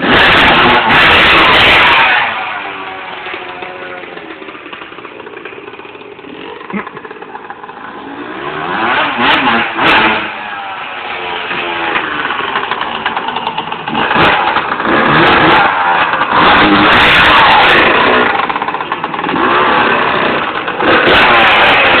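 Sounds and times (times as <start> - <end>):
motocross engine revving: 0.0 - 22.0.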